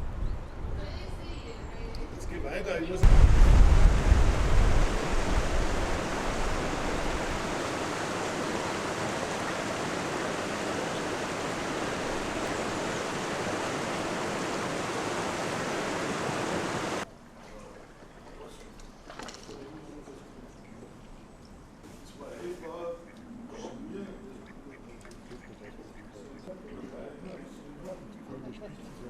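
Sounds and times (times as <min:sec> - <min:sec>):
heavy low rumble: 0:03.0 - 0:07.9
floodwater rushing: 0:03.0 - 0:17.1.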